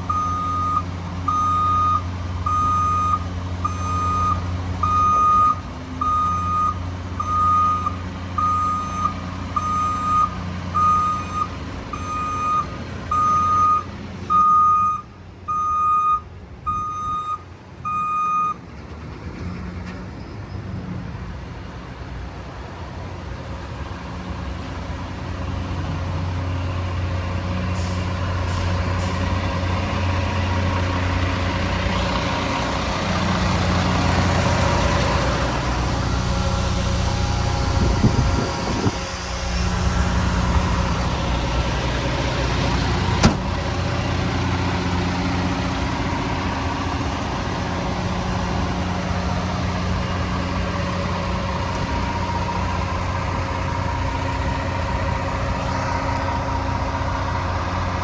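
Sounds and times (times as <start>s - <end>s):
garbage truck running: 0.0s - 14.7s, 18.5s - 58.0s
reversing alarm beeping: 0.1s - 18.6s.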